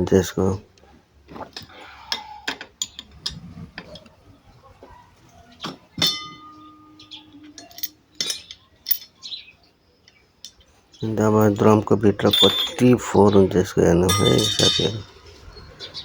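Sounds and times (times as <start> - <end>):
metal tools clinking and knocking: 1.6 - 3.9, 6.0 - 9.3, 10.0 - 13.3, 14.1 - 15.2
ringing metallic clang: 6.0 - 9.1, 12.2 - 13.1, 14.1 - 15.2.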